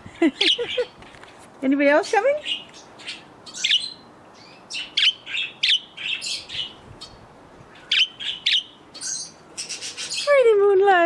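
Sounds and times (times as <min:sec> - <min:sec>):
budgerigars chirping: 0:00.4 - 0:01.0, 0:02.4 - 0:10.4.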